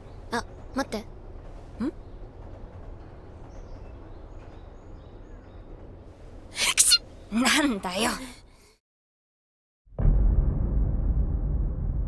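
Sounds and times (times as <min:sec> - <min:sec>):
low outdoor background ambience: 0:00.0 - 0:08.8.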